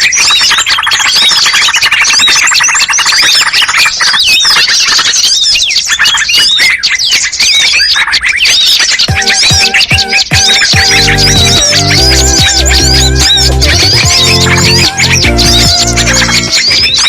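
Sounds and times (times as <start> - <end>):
songbirds chirping and trilling: 0.0 - 17.0
electronic music with synth: 9.1 - 17.0.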